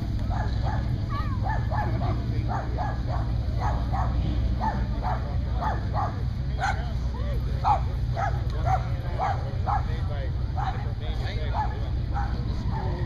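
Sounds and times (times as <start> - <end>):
low background rumble: 0.0 - 13.0
small dog yapping: 0.3 - 6.8.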